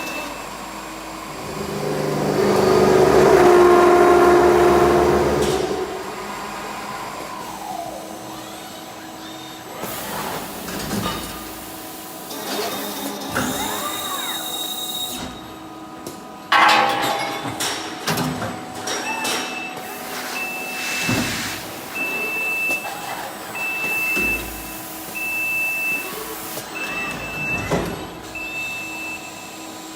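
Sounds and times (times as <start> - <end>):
servo motors whining: 12.3 - 15.4.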